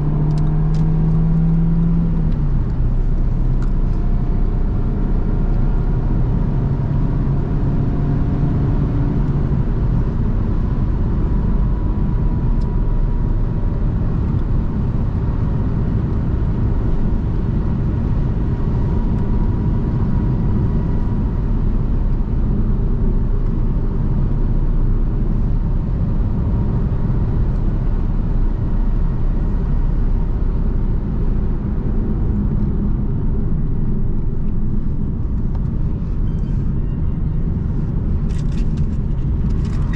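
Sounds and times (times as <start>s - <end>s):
car road and engine rumble: 0.0s - 39.9s
faint engine hum: 0.0s - 39.9s.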